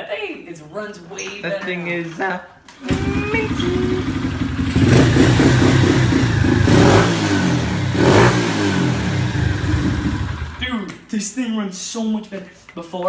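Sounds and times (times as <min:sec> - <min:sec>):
motorbike engine revving: 0:02.8 - 0:10.7.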